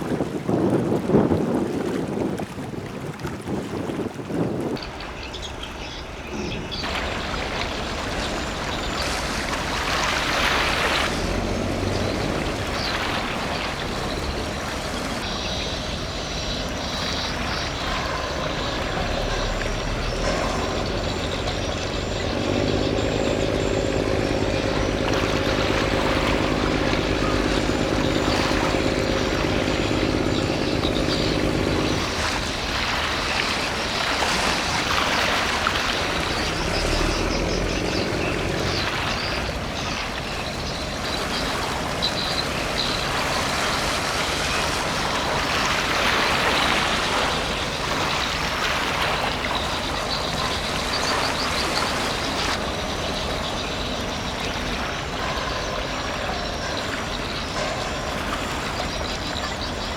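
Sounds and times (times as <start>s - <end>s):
water noise: 0.0s - 59.9s
wind: 0.0s - 59.9s
ship engines rumbling: 4.7s - 59.9s
pitched drone: 6.3s - 34.2s.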